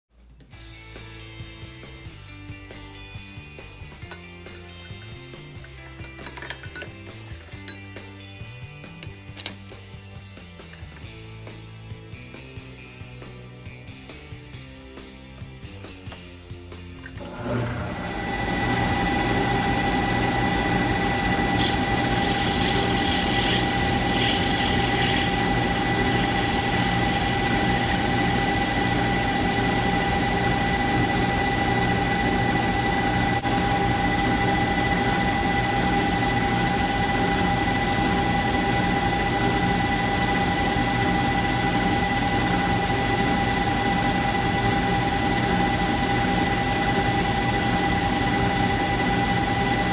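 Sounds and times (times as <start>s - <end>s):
metal lathe whining: 17.2s - 49.9s.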